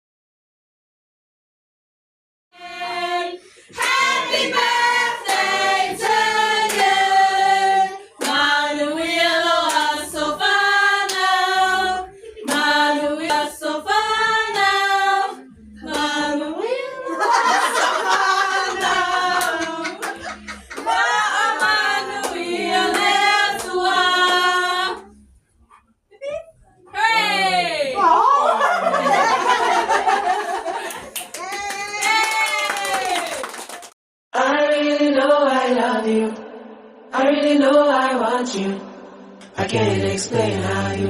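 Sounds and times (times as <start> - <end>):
group singing unaccompanied: 2.6 - 25.2, 28.6 - 30.9, 34.4 - 41.0
sharp handclaps: 6.7 - 6.9, 30.8 - 34.0.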